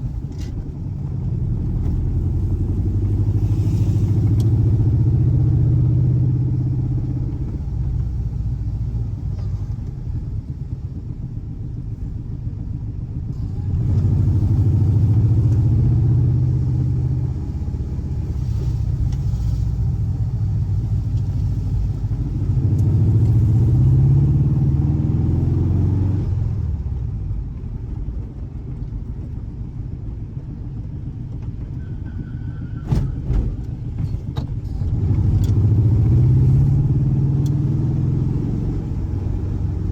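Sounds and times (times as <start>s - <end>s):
car engine revving: 13.4s - 26.8s, 34.7s - 39.9s.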